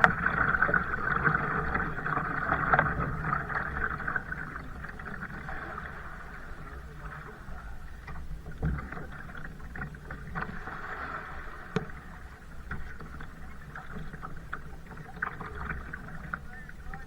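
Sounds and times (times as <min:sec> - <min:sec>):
paddle strokes splashing: 0:00.0 - 0:17.0
water lapping against hull: 0:00.0 - 0:17.0.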